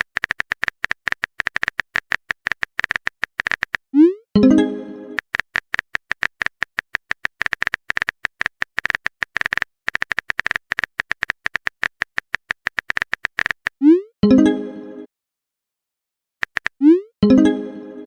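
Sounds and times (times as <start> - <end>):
typing clicking blips: 0.0 - 4.2, 5.2 - 14.0, 16.4 - 17.1.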